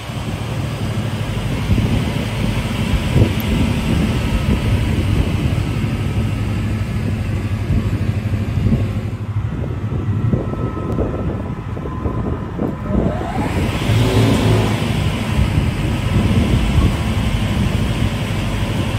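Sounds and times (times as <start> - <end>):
saw machine running: 12.8 - 18.9.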